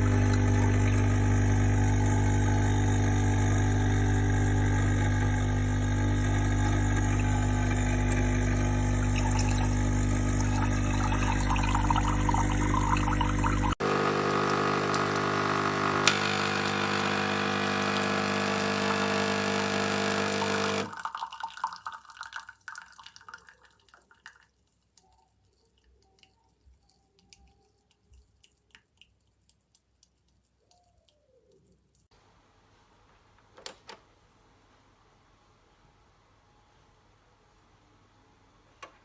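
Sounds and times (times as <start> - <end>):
espresso machine pump buzzing: 0.0 - 20.9
faint drips: 20.9 - 32.1.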